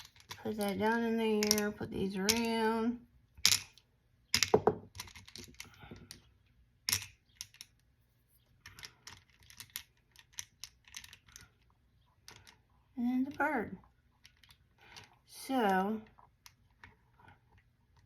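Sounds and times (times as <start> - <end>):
small objects clicking into place: 1.4 - 1.7, 3.4 - 7.9.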